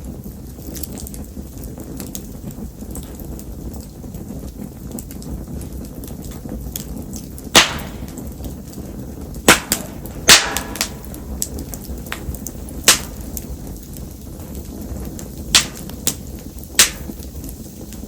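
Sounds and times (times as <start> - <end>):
wood fire popping and snapping: 0.0 - 18.0
rain hissing: 5.3 - 18.0.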